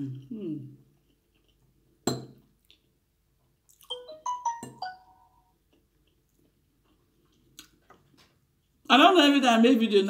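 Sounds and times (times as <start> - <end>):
smartphone alert tone: 3.9 - 5.5.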